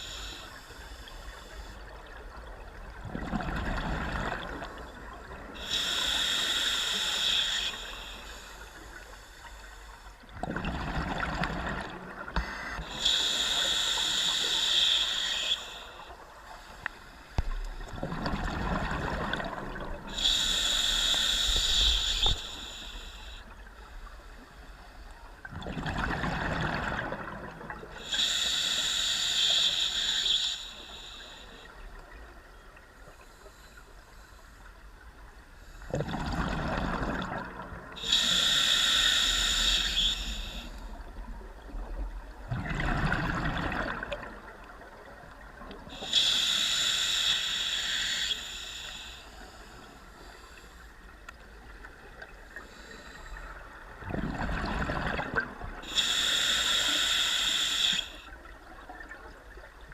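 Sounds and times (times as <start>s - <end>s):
diver breathing through regulator: 5.5s - 10.2s, 12.4s - 17.6s, 18.8s - 23.6s, 28.0s - 31.8s, 38.0s - 41.0s, 45.8s - 51.0s, 55.8s - 58.4s
exhaled bubbles rushing: 17.9s - 20.1s, 35.9s - 37.7s, 42.5s - 44.4s, 54.0s - 55.8s.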